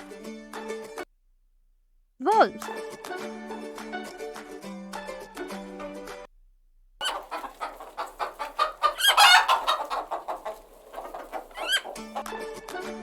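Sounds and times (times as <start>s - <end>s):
hen clucking and cackling: 7.0s - 12.4s.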